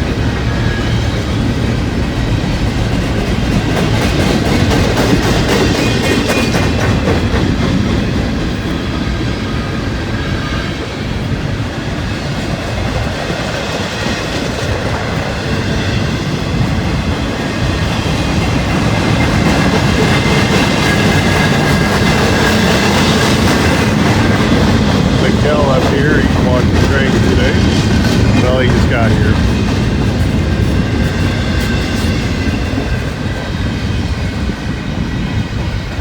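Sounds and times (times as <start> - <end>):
wheels clacking over rail joints: 0.0 - 9.3, 12.3 - 28.8
freight train cars rolling: 0.0 - 36.0.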